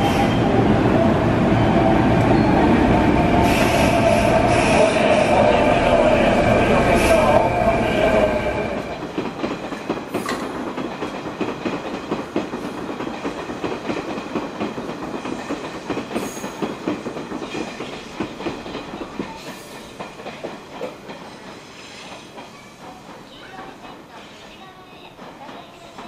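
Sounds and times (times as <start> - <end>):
train wheels clattering over points: 8.8 - 26.0.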